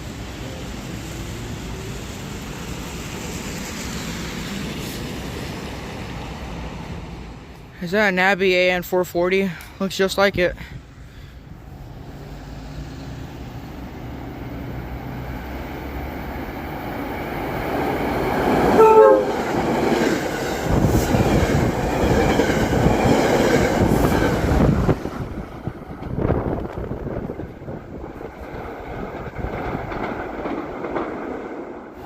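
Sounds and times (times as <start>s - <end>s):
train rumble: 0.0s - 32.0s
wheel clatter over rail joints: 16.9s - 32.0s
train horn blast: 18.7s - 19.4s.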